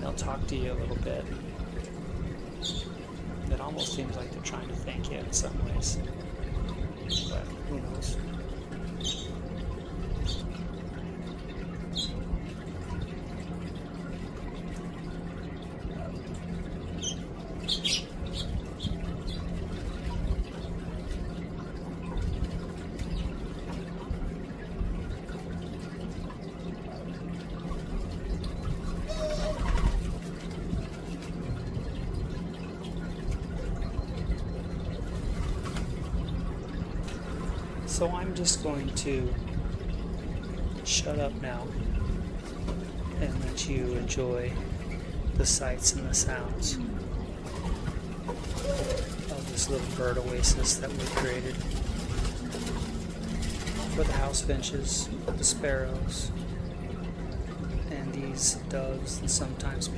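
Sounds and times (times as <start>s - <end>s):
steady low hum and rumble: 0.0s - 59.9s.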